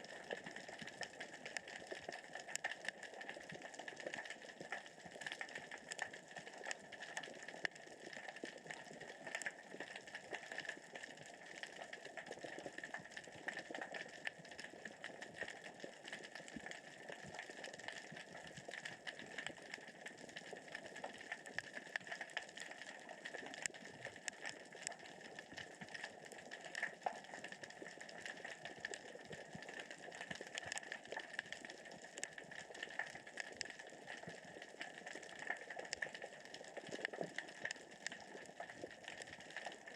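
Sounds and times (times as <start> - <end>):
underwater rocks clicking: 0.0 - 39.9.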